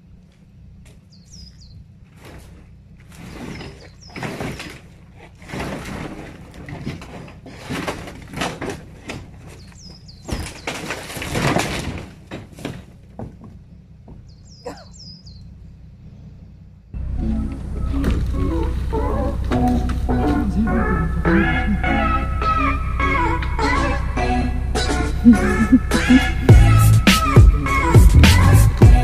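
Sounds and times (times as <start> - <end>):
bird chirping: 1.0 - 2.0, 3.3 - 4.7, 9.5 - 10.8, 14.1 - 16.6
something smashing and clattering: 3.2 - 13.6.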